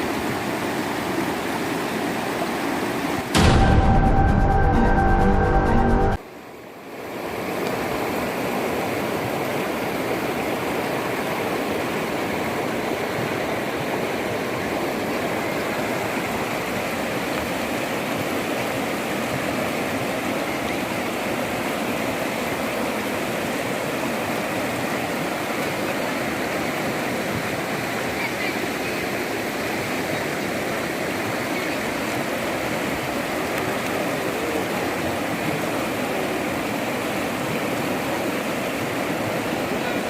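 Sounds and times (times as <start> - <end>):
floodwater rushing: 0.0 - 40.0.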